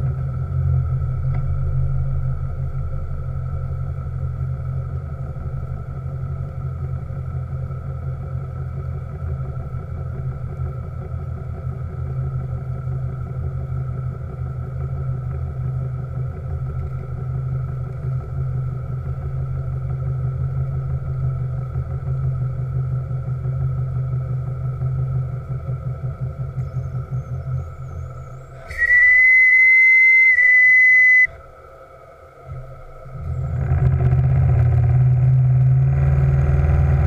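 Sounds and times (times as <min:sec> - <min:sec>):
steam engine running: 0:28.6 - 0:31.4.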